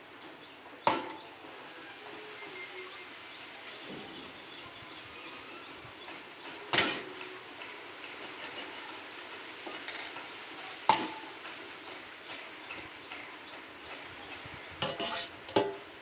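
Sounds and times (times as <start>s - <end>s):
chicken sizzling in a pan: 0.9s - 13.8s, 14.7s - 16.0s
metal utensil clanking on pan: 6.6s - 11.6s, 14.8s - 16.0s.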